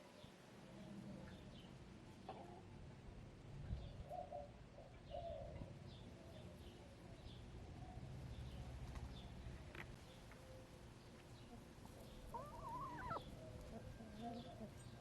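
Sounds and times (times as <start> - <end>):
small birds chirping: 11.0 - 15.0
hens clucking: 12.0 - 14.7.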